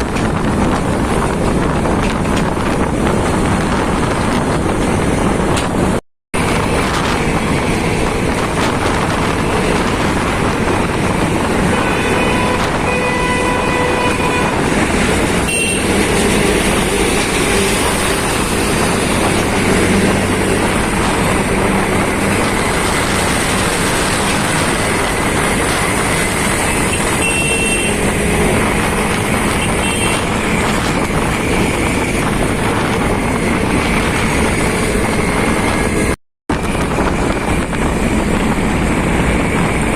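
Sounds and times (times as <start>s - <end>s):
motorcycle road noise: 0.0s - 39.9s
wind rush: 0.0s - 39.9s
vehicle horn: 11.6s - 14.7s, 15.4s - 16.1s, 26.6s - 28.1s, 29.5s - 30.4s.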